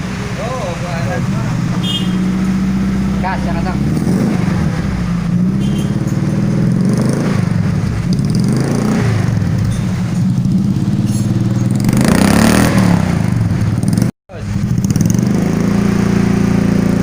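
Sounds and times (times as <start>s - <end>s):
car engine exhaust note: 0.0s - 17.0s.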